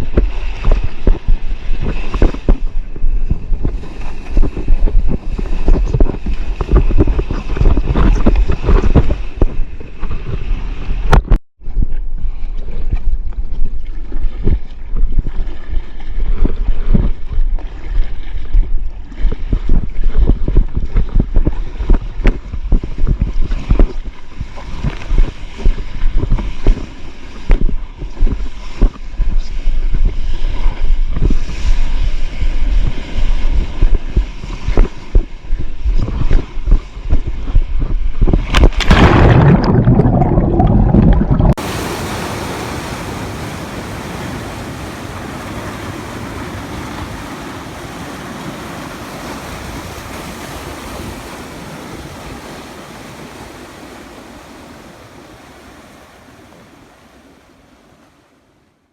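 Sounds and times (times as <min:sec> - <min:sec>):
wind buffeting microphone: 0:00.0 - 0:12.1, 0:13.1 - 0:58.0
water slapping and splashing: 0:38.4 - 0:58.6
surf rushing: 0:38.8 - 0:58.7.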